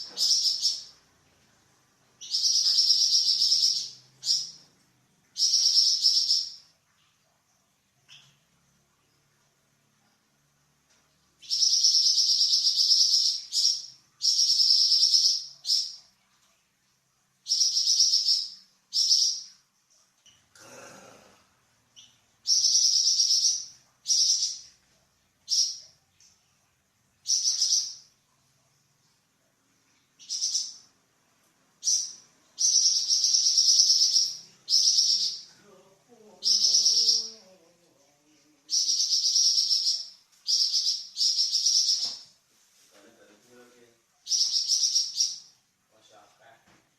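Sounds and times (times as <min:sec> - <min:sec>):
songbird buzzy chattering song: 0:00.0 - 0:01.0, 0:02.2 - 0:04.7, 0:05.3 - 0:06.6, 0:11.4 - 0:16.0, 0:17.4 - 0:19.6, 0:22.0 - 0:24.8, 0:27.2 - 0:28.1, 0:30.2 - 0:30.9, 0:31.8 - 0:37.5, 0:38.7 - 0:42.3, 0:44.2 - 0:45.6.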